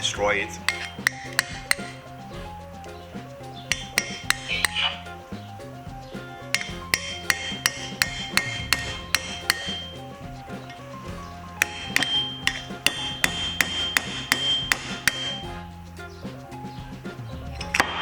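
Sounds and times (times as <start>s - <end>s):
hammer tapping metal chisel: 0.0s - 5.2s, 6.4s - 15.6s, 17.6s - 18.0s
background music: 0.0s - 18.0s.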